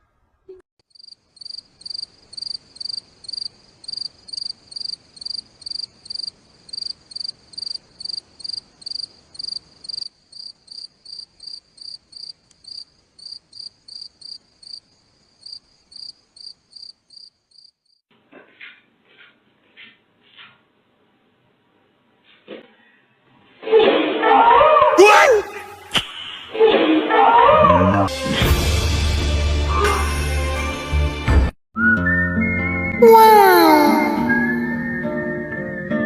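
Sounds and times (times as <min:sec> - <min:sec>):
cricket chirping: 0:00.9 - 0:18.0.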